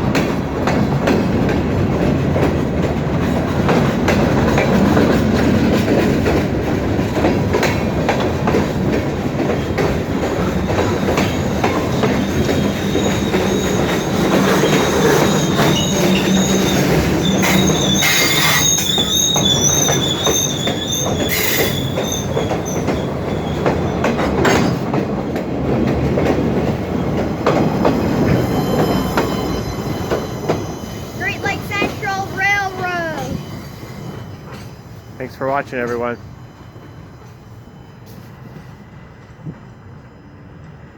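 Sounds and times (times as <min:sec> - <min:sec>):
train wheels rumbling on rails: 0:00.0 - 0:40.9
train wheels squealing: 0:09.6 - 0:24.9, 0:27.4 - 0:40.8.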